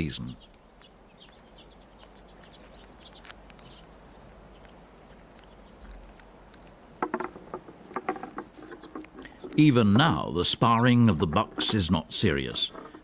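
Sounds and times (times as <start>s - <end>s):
sharp knocks: 7.0s - 9.6s.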